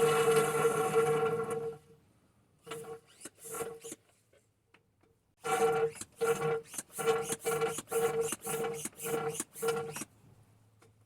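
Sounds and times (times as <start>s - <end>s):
hand pump squeaking strokes: 5.9s - 10.1s.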